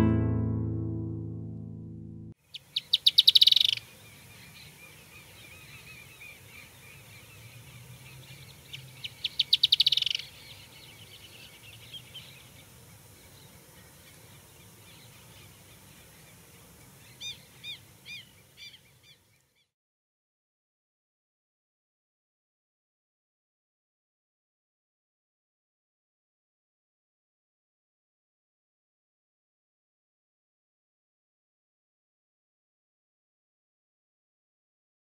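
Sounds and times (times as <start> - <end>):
clear rising and falling bird notes: 0.0 - 3.8
songbird rapid trills: 2.5 - 7.4, 8.0 - 19.6
soft bird chirping: 2.5 - 19.7.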